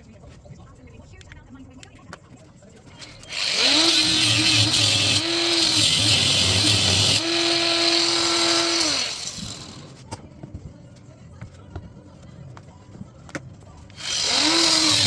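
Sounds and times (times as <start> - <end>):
handheld power tool running: 3.1 - 10.0, 14.0 - 15.0.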